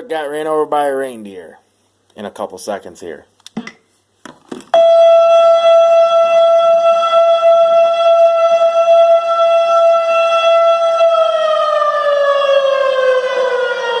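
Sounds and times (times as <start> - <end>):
fire truck siren: 4.8 - 14.0.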